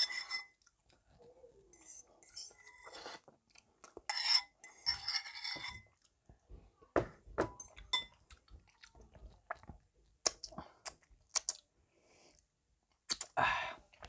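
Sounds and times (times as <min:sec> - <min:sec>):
person chewing pasta: 0:02.8 - 0:04.1, 0:07.7 - 0:14.0
mouth clicks and smacks: 0:08.3 - 0:11.7, 0:12.9 - 0:14.0.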